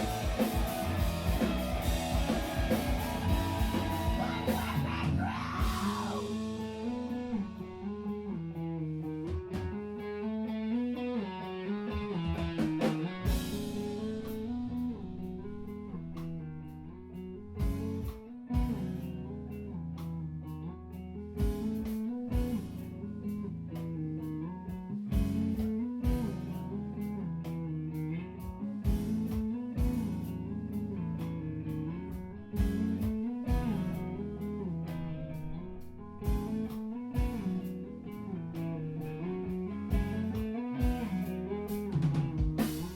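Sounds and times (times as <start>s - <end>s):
drum hits: 0.0s - 6.0s
live band playing instrumental: 0.0s - 7.6s, 11.9s - 15.0s, 36.2s - 37.8s, 39.4s - 42.9s
electric guitar melody: 0.0s - 42.9s.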